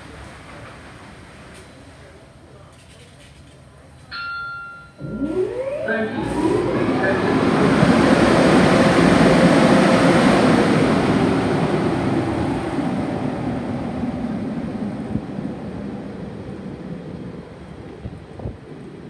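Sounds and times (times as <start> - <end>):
car wash equipment rushing: 5.0 - 16.6.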